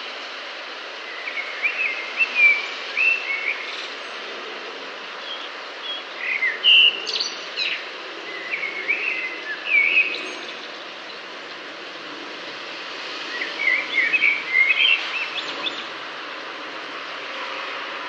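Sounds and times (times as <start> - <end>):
bird singing warbled phrases: 5.2 - 11.2, 13.3 - 15.9.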